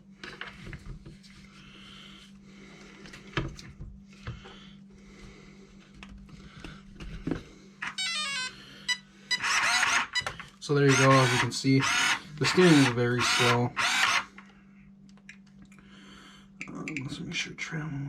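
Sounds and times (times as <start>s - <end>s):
low electrical hum: 0.0s - 18.0s
steering servo whirring: 9.3s - 14.3s.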